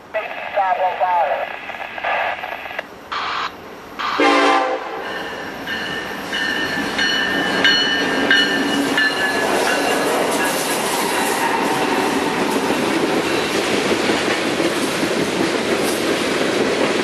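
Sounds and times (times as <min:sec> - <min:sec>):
freight train running by: 0:00.0 - 0:17.0
train horn blast: 0:04.0 - 0:05.1
wheels squealing on rails: 0:05.0 - 0:12.6.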